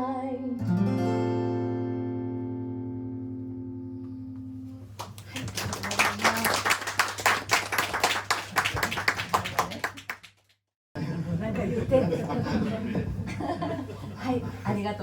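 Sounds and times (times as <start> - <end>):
audience clapping: 5.0 - 10.6.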